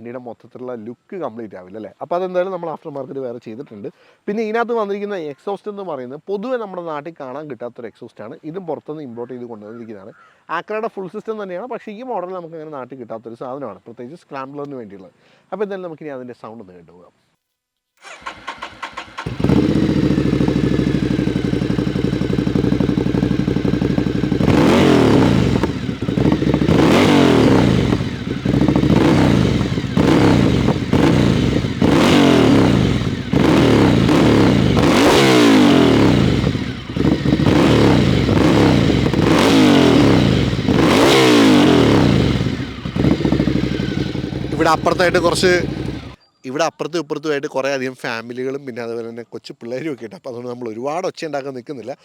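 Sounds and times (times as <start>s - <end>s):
motorcycle engine revving loudly: 18.0s - 46.2s.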